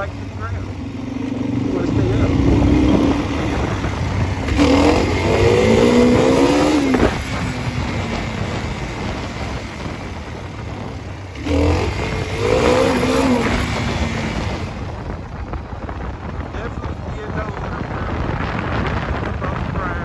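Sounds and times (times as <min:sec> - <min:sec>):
dirt bike engine revving: 0:00.0 - 0:15.3
wind noise: 0:00.0 - 0:20.0.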